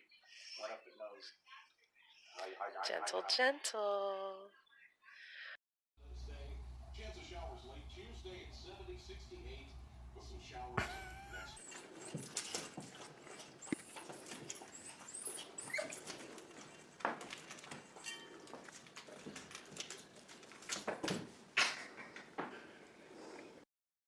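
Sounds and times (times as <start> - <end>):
dog squeaking: 11.3 - 12.4, 13.3 - 16.2.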